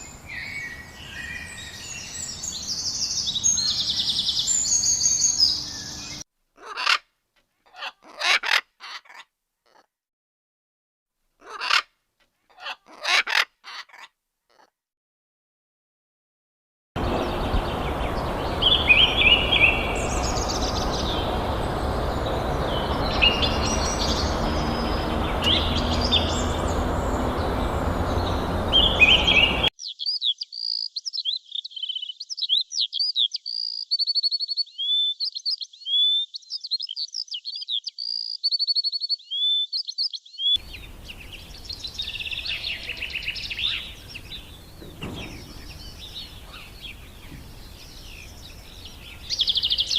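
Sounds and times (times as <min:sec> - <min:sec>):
small birds chirping: 0:00.0 - 0:06.8, 0:17.0 - 0:49.9.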